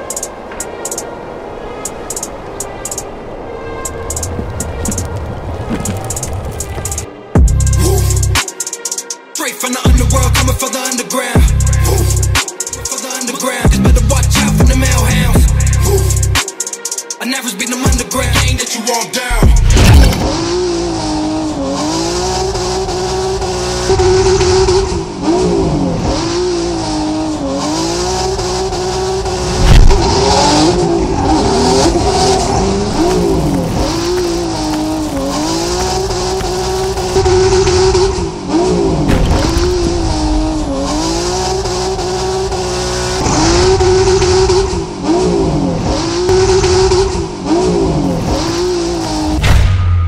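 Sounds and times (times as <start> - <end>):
car engine revving hard: 20.0 - 49.4
loud thump: 29.6 - 30.0, 49.4 - 50.0
tyres spinning in loose sand: 31.2 - 37.5.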